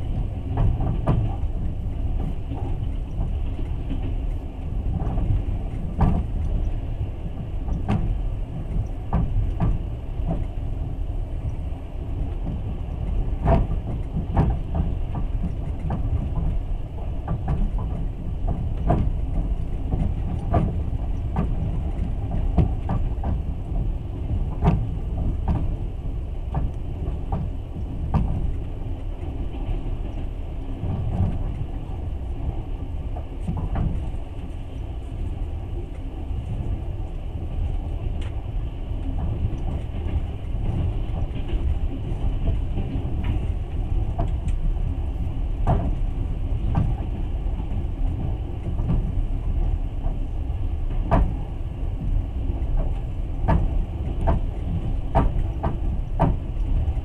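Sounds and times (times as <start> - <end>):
low rumble of train wheels: 0.0 - 57.0
clicks and knocks of carriage: 0.1 - 6.7, 7.4 - 10.5, 12.3 - 25.8, 26.5 - 31.7, 33.2 - 34.2, 45.6 - 46.1, 48.1 - 49.2, 50.9 - 51.4, 52.0 - 57.0.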